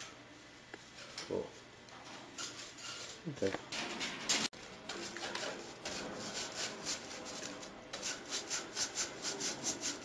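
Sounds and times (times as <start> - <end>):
scrub brush scrubbing cage bars: 4.9 - 10.0.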